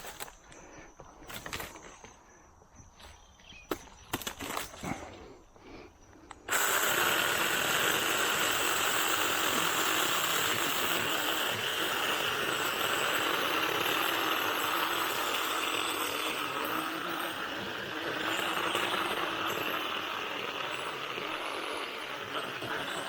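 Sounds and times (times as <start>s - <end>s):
mini chainsaw cutting wood: 6.4s - 23.0s.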